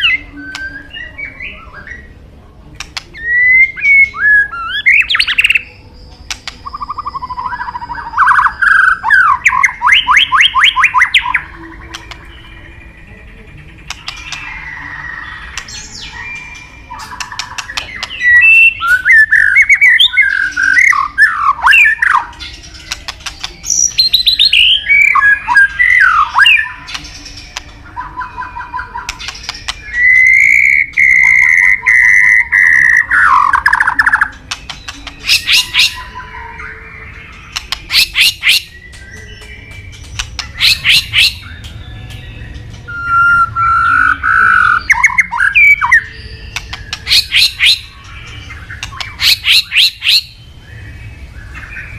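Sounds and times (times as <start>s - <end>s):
bird clicking notes: 2.7s - 3.2s, 6.3s - 6.8s, 13.8s - 14.5s, 17.0s - 18.2s, 29.0s - 31.4s, 33.8s - 36.0s, 37.3s - 43.2s, 46.5s - 50.1s
bird singing fluting whistles: 6.6s - 12.3s, 14.0s - 22.4s, 29.8s - 37.1s, 37.9s - 51.9s.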